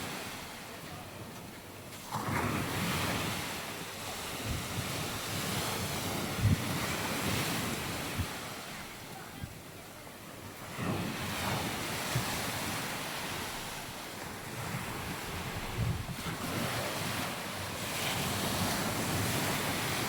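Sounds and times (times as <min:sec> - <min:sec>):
surf washing onto beach: 0:00.0 - 0:20.0
wind rumbling on microphone: 0:02.1 - 0:08.6, 0:10.6 - 0:20.0.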